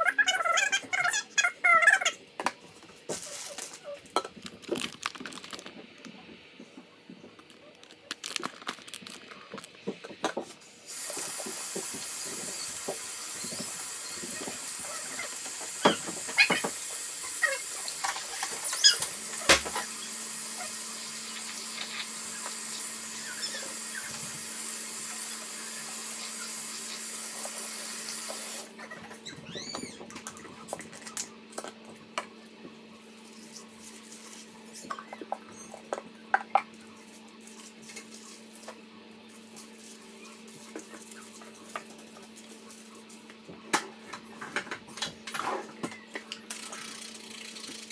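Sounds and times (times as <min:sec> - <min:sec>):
tap water running onto hair: 0:10.9 - 0:28.7.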